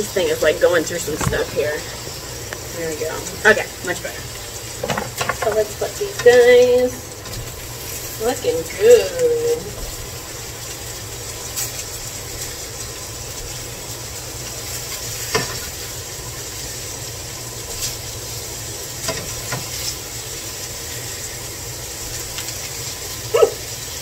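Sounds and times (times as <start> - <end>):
food sizzling in frying pan: 0.0 - 24.0
spatula tapping and scraping pan: 4.8 - 6.5.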